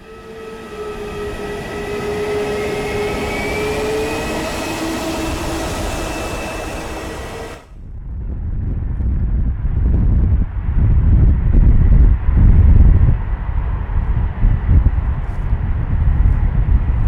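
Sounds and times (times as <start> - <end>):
jet engines rushing and whining: 0.0 - 7.8.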